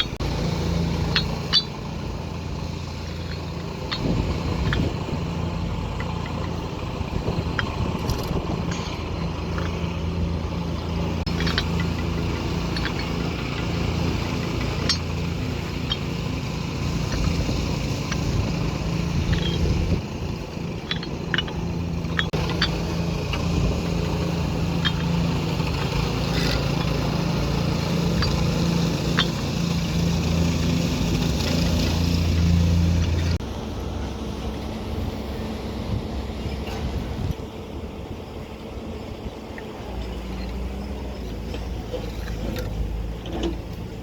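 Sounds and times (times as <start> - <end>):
excavator engine running: 0.0 - 44.0.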